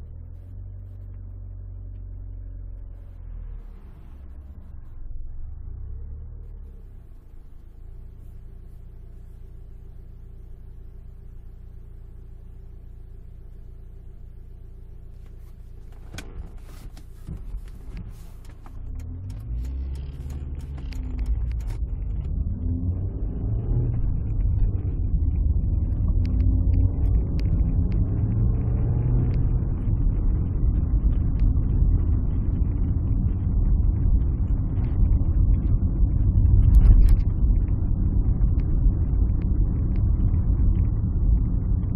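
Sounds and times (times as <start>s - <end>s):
car engine idling: 0.0s - 41.9s
car pulling away with road rumble: 0.0s - 41.9s.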